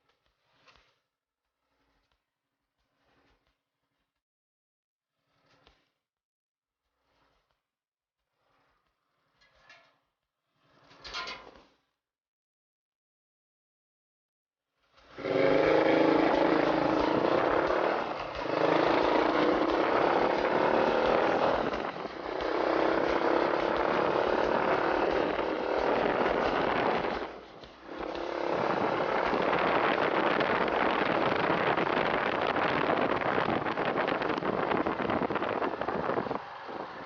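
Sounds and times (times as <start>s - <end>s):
small motorcycle engine running: 15.1s - 37.0s
wind rushing past: 15.2s - 37.0s.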